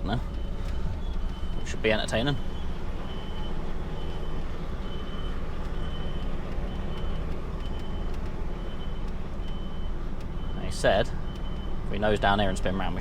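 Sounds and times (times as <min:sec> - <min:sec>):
reversing alarm beeping: 0:00.0 - 0:12.9
truck diesel engine running: 0:00.0 - 0:13.0.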